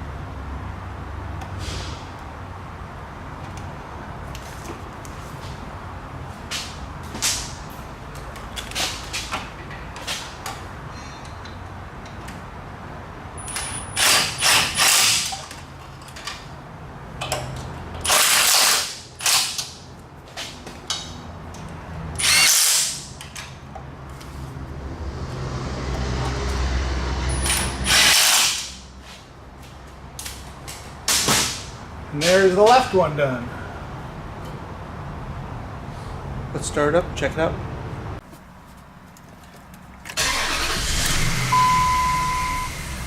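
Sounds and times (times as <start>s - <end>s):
power tool bursts: 22.2s - 23.0s, 27.5s - 28.6s, 40.2s - 41.6s.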